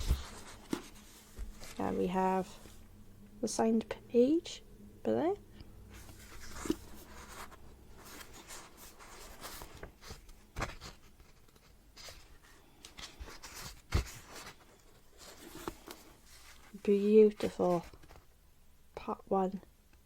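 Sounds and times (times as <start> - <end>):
book pages turning: 0.0 - 2.8, 5.9 - 18.3.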